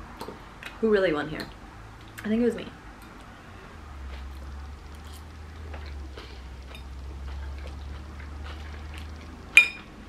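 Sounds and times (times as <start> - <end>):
low hum: 1.5 - 10.0
person chewing food: 3.0 - 10.0.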